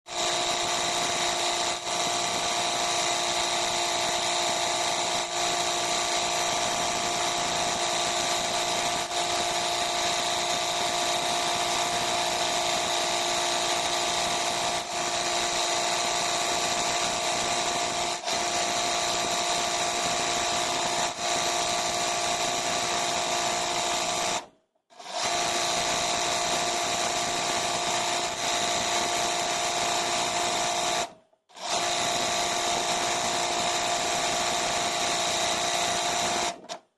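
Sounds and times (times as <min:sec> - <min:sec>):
sewing machine running: 0:00.1 - 0:36.9.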